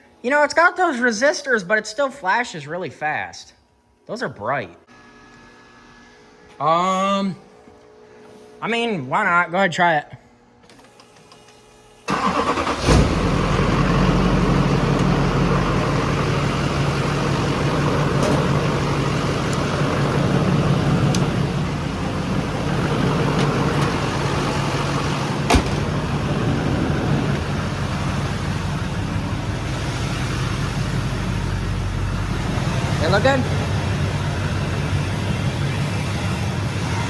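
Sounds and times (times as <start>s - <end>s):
diesel engine idling: 12.1s - 37.0s.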